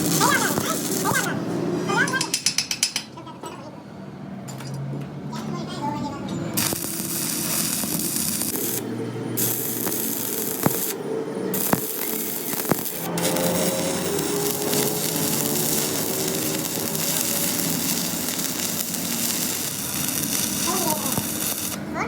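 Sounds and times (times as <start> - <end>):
power tool hissing on metal: 0.0 - 1.3, 6.6 - 21.9.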